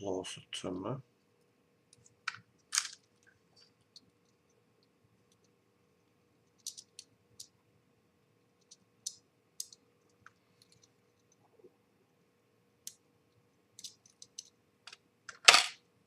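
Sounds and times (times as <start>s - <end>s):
small parts clicking and tapping: 1.9s - 5.6s, 6.4s - 7.6s, 8.5s - 11.5s, 12.8s - 15.8s.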